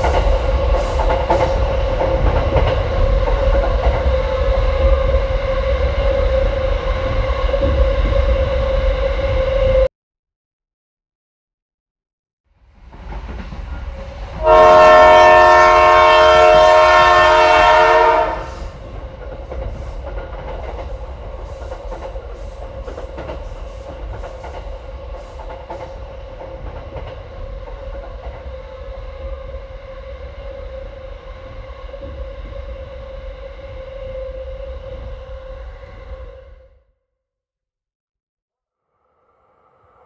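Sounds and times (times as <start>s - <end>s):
train running hum: 0.0s - 9.9s, 12.5s - 36.8s
train horn chord: 14.4s - 18.7s.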